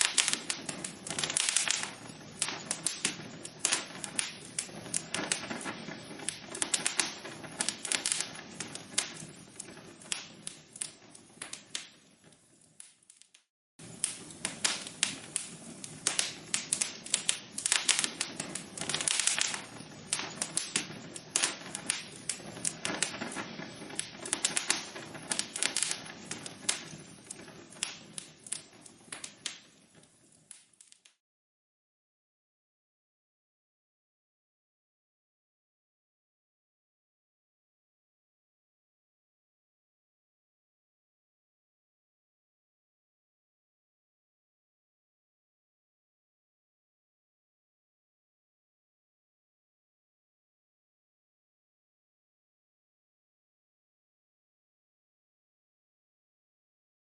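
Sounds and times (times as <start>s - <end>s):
logs crackling in a fireplace: 0.0s - 31.2s.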